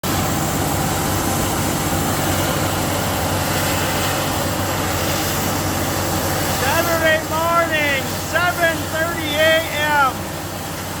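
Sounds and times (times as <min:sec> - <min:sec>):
construction machinery engine hum: 0:00.0 - 0:11.0.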